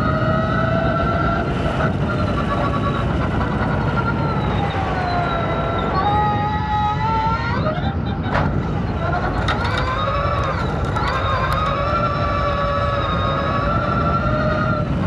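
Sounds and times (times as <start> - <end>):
tyres rumbling on dirt: 7.5 - 15.0.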